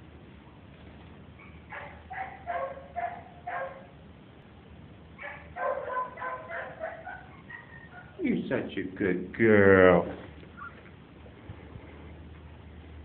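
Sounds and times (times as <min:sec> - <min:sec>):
dog whining and yipping: 0:05.2 - 0:08.2, 0:10.5 - 0:10.9.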